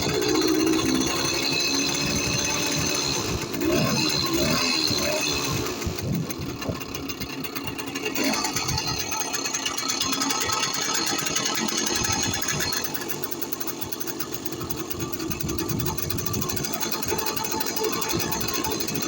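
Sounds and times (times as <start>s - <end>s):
moped engine putter: 0.0s - 19.0s.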